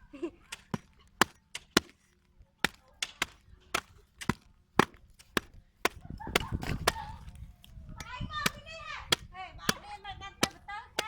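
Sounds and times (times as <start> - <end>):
blade chopping: 0.4 - 7.3, 8.0 - 11.0.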